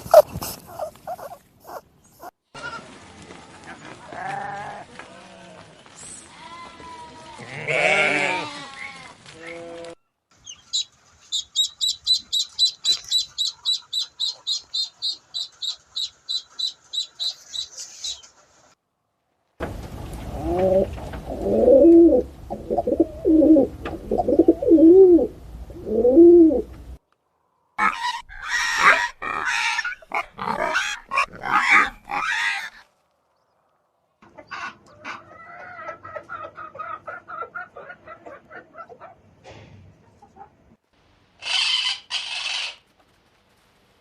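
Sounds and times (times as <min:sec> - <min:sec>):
bird cooing: 0:20.3 - 0:26.7
chicken clucking: 0:34.2 - 0:39.2, 0:40.0 - 0:40.7.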